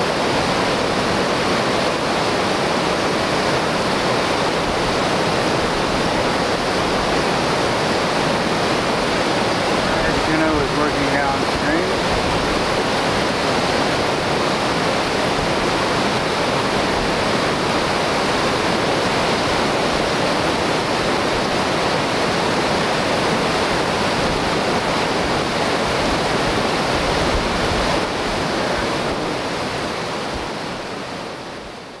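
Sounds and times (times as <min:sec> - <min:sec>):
whitewater rapids rushing: 0:00.0 - 0:32.0.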